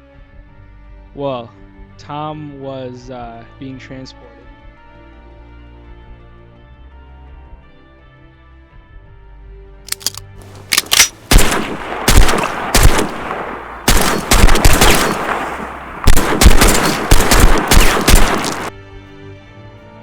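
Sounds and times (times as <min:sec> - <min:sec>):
rapid gunfire volleys: 0:09.9 - 0:18.8
sharp gunshots: 0:09.9 - 0:18.8.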